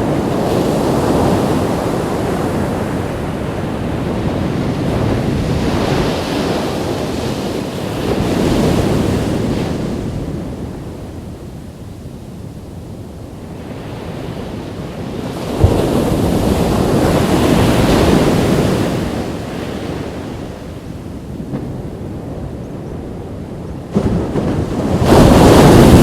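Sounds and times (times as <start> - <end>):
wind rumble on microphone: 0.0 - 26.0
ocean wave washing up: 15.3 - 20.1.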